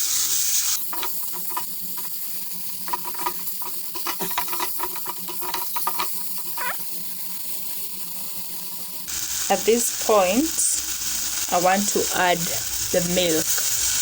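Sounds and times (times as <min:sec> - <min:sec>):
vegetables sizzling in a pan: 0:00.0 - 0:14.0
spoon scraping and tapping pan: 0:00.8 - 0:02.2, 0:02.8 - 0:06.5.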